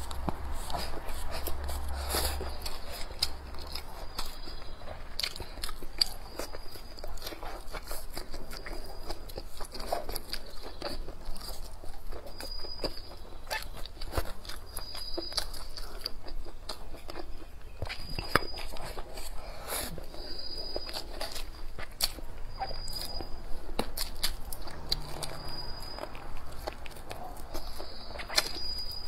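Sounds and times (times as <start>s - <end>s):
chewing and biting food: 0.0s - 29.0s
food crunching: 0.0s - 29.0s.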